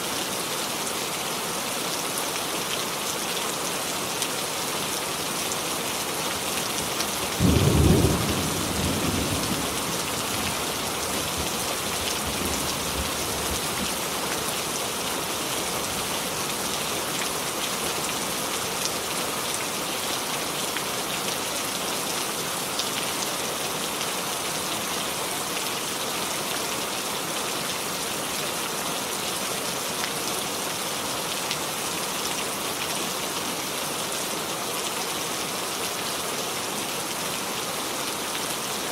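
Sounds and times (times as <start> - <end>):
heavy rain: 0.0 - 38.9
thunder clap rumbling: 7.4 - 10.0.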